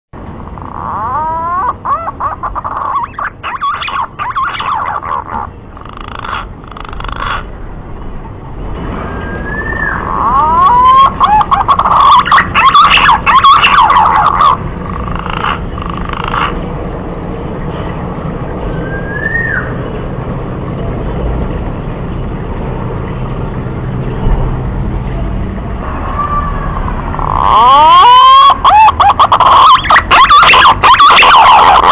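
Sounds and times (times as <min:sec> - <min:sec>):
pigeon warbling whistles: 0:09.1 - 0:14.6, 0:18.8 - 0:19.8.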